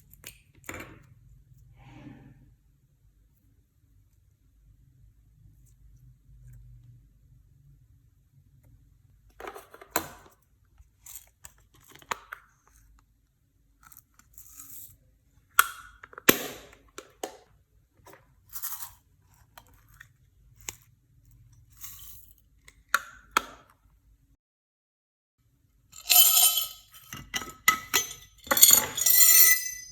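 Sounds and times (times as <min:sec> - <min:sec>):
crinkling and scraping: 0:26.0 - 0:29.9.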